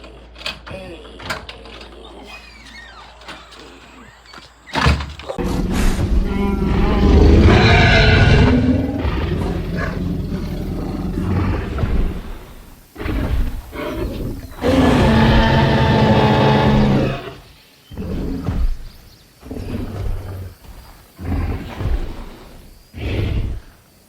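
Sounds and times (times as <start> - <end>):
dinosaur roars: 5.4 - 20.6.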